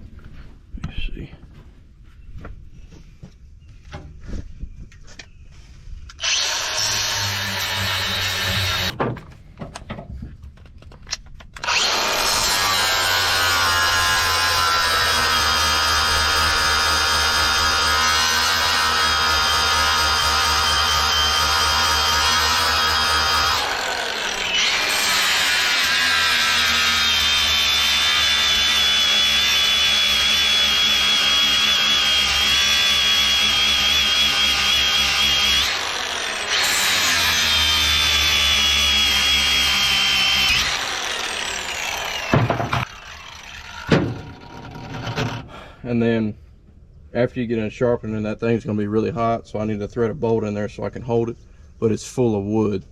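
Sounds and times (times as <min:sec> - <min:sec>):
angle grinder grinding steel: 0:06.1 - 0:09.0, 0:11.6 - 0:45.8.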